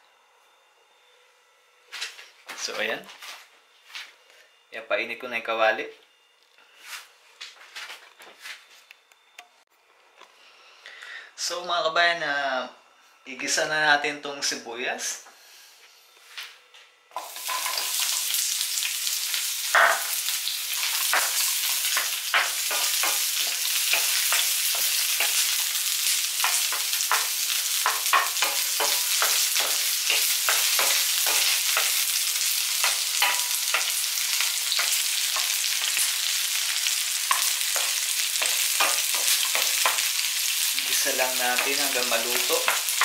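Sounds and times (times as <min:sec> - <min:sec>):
onion sizzling in oil: 0:17.1 - 0:43.0.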